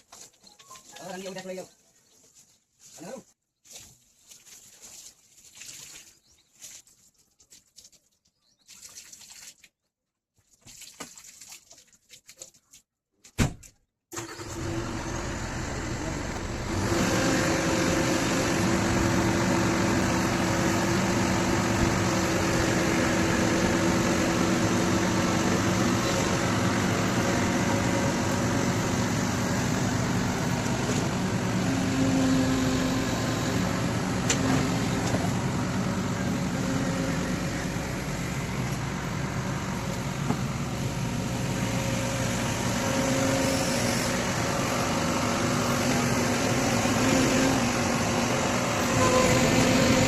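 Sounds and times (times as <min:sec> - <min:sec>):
excavator diesel engine running: 0:14.2 - 0:50.0.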